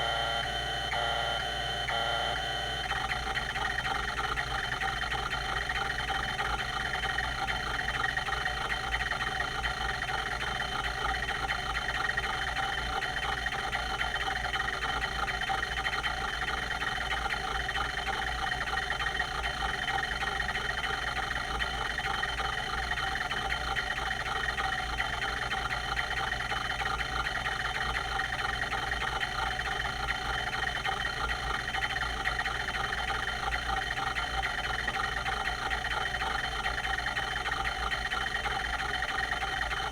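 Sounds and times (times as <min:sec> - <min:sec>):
hard drive whirring and ticking: 0:00.0 - 0:39.9.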